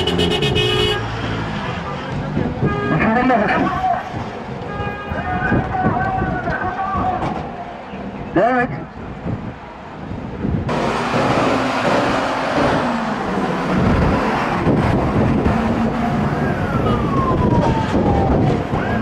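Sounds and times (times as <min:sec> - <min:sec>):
vehicle rushing noise: 0:00.0 - 0:02.7, 0:09.2 - 0:19.0
siren wailing: 0:15.1 - 0:19.0.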